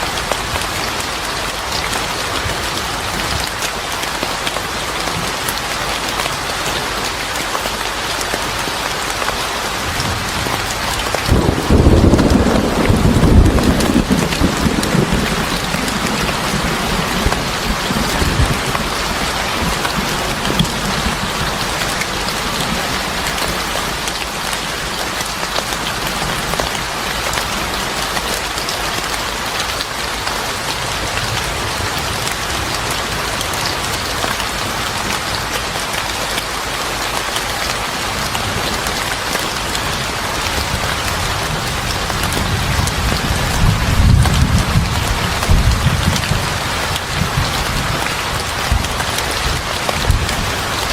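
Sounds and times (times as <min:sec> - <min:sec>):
rain falling: 0:00.0 - 0:50.9
thunder rumbling: 0:10.0 - 0:24.1, 0:40.5 - 0:50.9.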